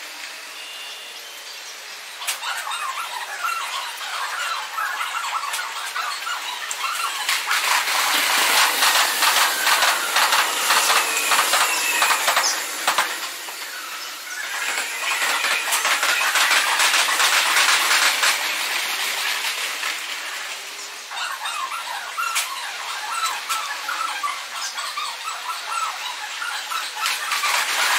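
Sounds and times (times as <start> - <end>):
faint gliding whines: 0.0 - 22.0
train wheels clattering over rail joints: 7.3 - 13.6, 14.5 - 20.3.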